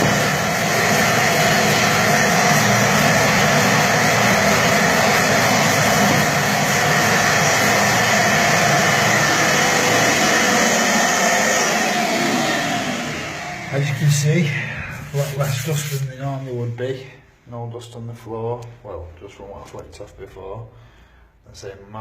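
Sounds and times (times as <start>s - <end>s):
dust extractor running: 0.0s - 16.0s.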